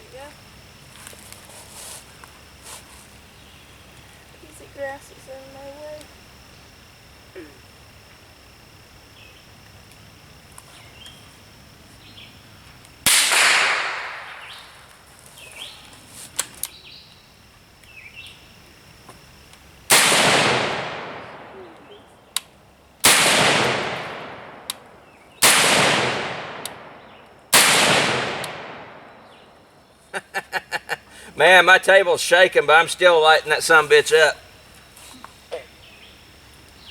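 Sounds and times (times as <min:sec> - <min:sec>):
birds chirping faintly: 0:02.1 - 0:07.9, 0:08.9 - 0:12.9, 0:14.1 - 0:19.9, 0:24.2 - 0:25.5, 0:26.5 - 0:27.5, 0:28.6 - 0:36.9
rifle shots echoing: 0:13.1 - 0:14.9, 0:19.9 - 0:21.7, 0:23.0 - 0:29.6
small sharp clicks: 0:28.4 - 0:28.6.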